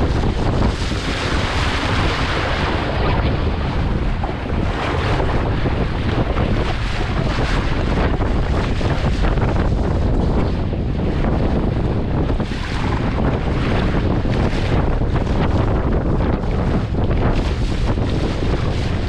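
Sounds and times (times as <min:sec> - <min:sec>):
waves rushing: 0:00.0 - 0:19.0
wind buffeting microphone: 0:00.0 - 0:19.0.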